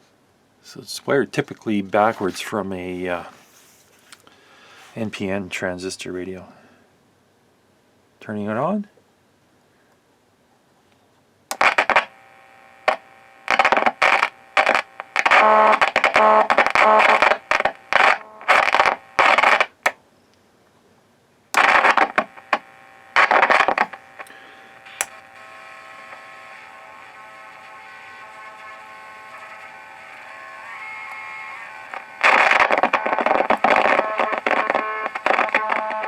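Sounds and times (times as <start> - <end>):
steady hum and hiss: 0.0 - 36.0
radio static and buzzing: 2.0 - 3.4, 11.5 - 19.9, 21.6 - 36.0.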